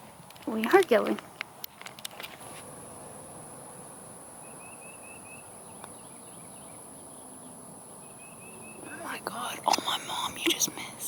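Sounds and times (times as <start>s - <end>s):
insect drone: 2.4s - 11.0s.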